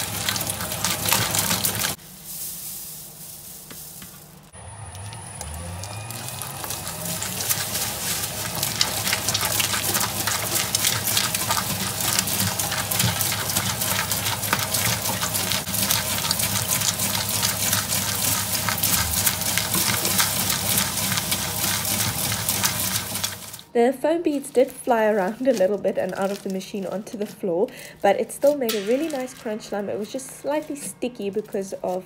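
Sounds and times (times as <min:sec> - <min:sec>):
mixer motor hum: 0:00.0 - 0:02.0, 0:04.4 - 0:23.7
slime crackling and squelching: 0:04.2 - 0:32.0.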